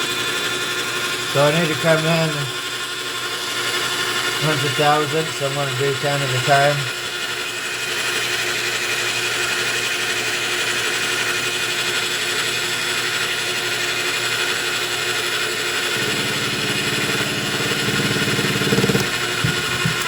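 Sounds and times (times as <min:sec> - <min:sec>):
lathe cutting metal: 0:01.1 - 0:07.2, 0:10.7 - 0:20.0
fast rattle: 0:16.0 - 0:20.0.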